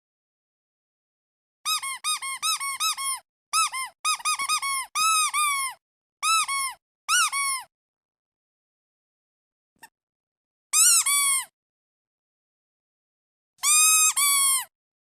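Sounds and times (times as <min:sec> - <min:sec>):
squeaky duck toy squeaking: 0:01.7 - 0:07.7, 0:10.8 - 0:11.5, 0:13.6 - 0:14.7.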